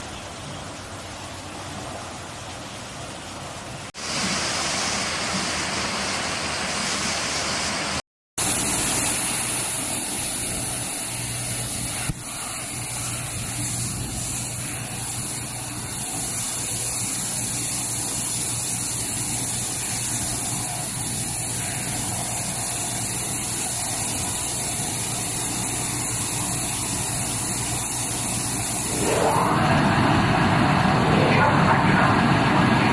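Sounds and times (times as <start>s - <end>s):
high-pressure water jets spraying: 4.0s - 29.6s.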